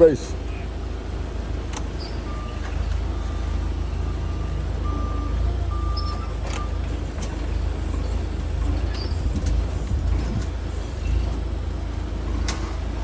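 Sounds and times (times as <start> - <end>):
truck engine rumbling: 0.0 - 13.0
backup alarm beeping: 2.0 - 7.6.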